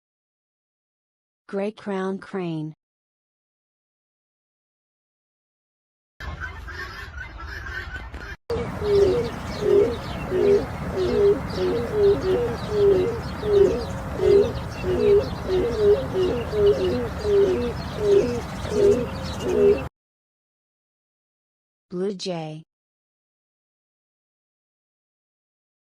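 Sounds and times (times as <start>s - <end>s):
crane calling: 8.5s - 19.9s
low background hum: 8.5s - 19.9s.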